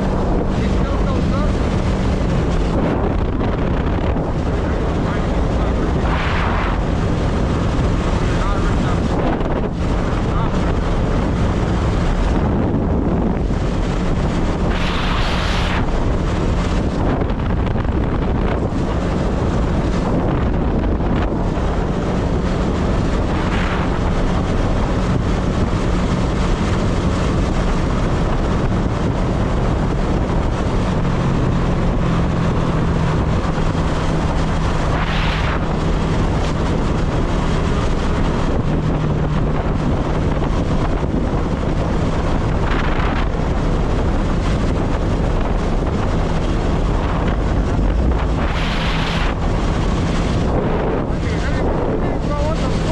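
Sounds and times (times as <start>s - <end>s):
motorcycle engine drone: 0.0s - 52.9s
rushes of noise: 0.0s - 52.9s
wind noise on microphone: 0.0s - 52.9s.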